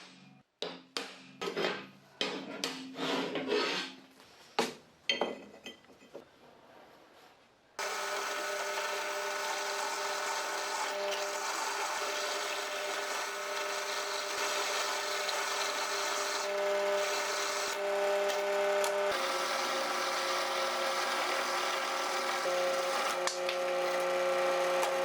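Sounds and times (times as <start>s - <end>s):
power tool running: 7.8s - 25.0s.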